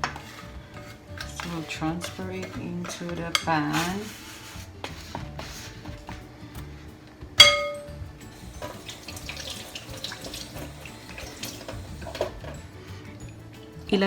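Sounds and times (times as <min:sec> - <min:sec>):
light kitchenware clatter: 0:00.0 - 0:04.1, 0:07.4 - 0:08.0
soft background music: 0:00.0 - 0:14.0
metallic clang of kitchenware: 0:07.4 - 0:08.0.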